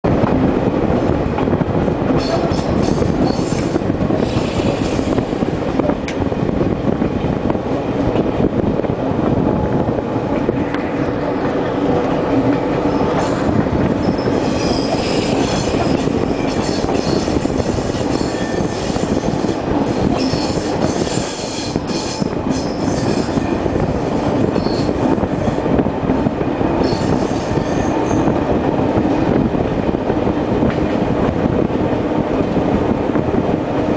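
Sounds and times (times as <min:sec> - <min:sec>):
wheels rumbling on rail: 0:00.0 - 0:33.9
high wheel squeal: 0:12.9 - 0:25.6, 0:26.8 - 0:28.3.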